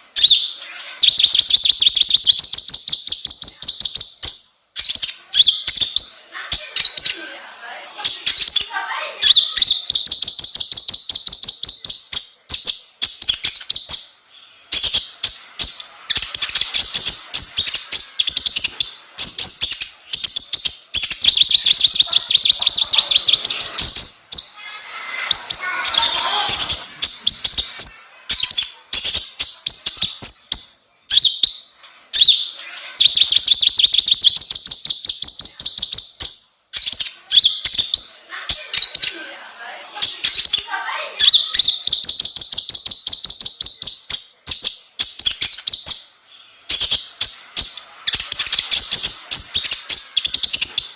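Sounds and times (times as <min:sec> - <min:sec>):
sunbird singing chattering trills: 0:08.0 - 0:36.2.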